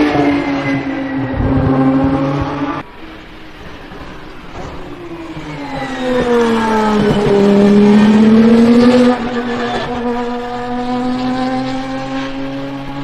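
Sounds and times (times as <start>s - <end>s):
race car engine accelerating: 0.0s - 2.9s, 3.9s - 13.0s.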